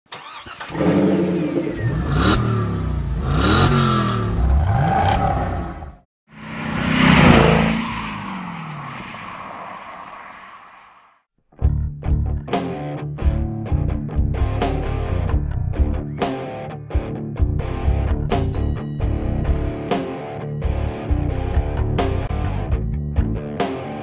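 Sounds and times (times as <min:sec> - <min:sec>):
car engine revving: 0:00.2 - 0:10.3.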